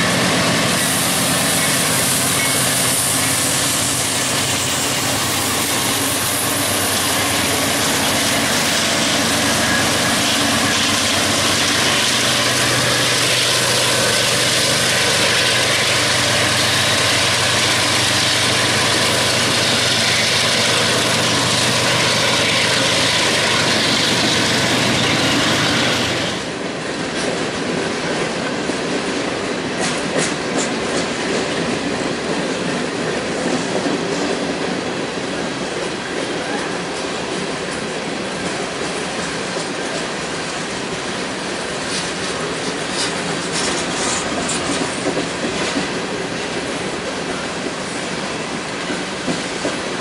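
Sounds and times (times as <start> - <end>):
loud wheel and rail noise: 0.0 - 50.0
wheels clicking over rail joints: 37.6 - 50.0.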